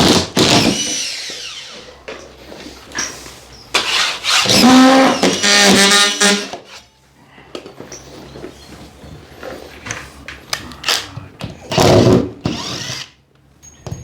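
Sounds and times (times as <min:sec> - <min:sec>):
power drill driving screws: 0:00.4 - 0:01.9, 0:03.8 - 0:06.5, 0:11.7 - 0:13.2.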